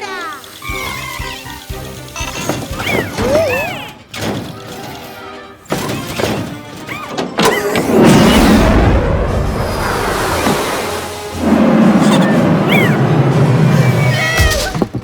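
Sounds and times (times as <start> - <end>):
background music: 0.0 - 15.0
loud crashing rumble: 7.8 - 14.0.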